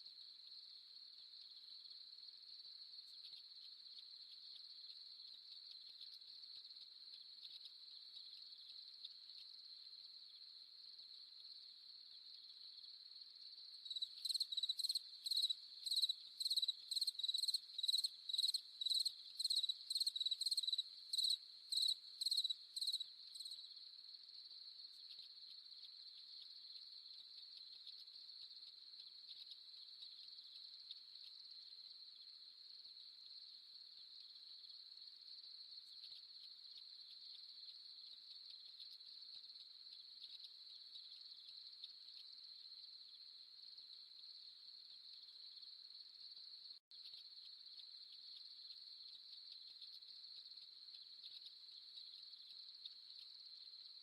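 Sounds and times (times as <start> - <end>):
cricket chorus trilling: 0.0 - 54.0
loud insect chirps: 13.6 - 23.8, 47.0 - 54.0.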